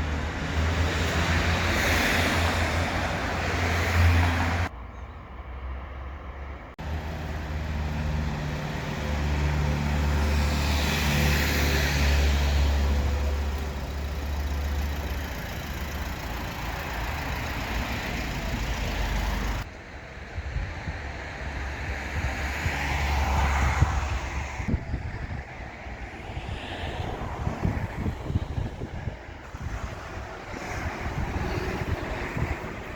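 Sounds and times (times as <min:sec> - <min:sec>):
vehicle engine running: 0:12.2 - 0:19.6.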